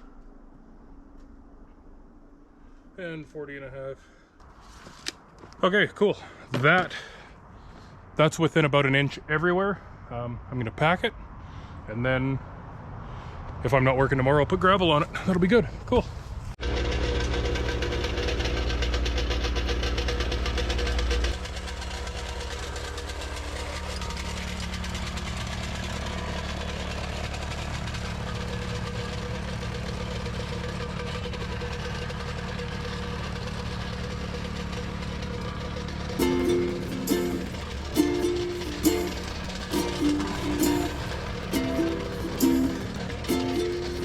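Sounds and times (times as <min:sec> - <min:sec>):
excavator diesel engine running: 0:16.6 - 0:44.0.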